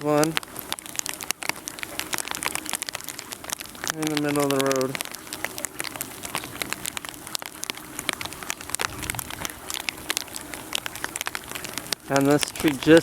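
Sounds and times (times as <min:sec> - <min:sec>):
freezing rain pattering on ice: 0:00.0 - 0:13.0.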